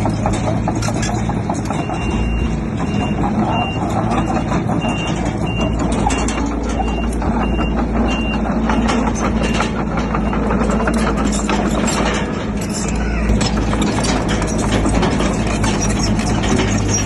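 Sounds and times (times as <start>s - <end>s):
clanks and knocks: 0.0s - 17.0s
heavy diesel machinery running: 0.0s - 17.0s
reversing alarm beeping: 1.7s - 11.5s.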